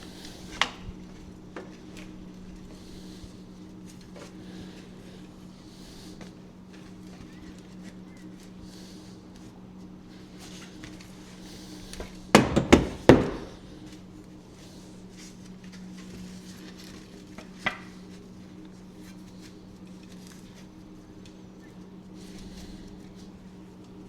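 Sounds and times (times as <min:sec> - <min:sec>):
steady low hum: 0:00.0 - 0:24.0
sharp knocks: 0:12.4 - 0:13.6.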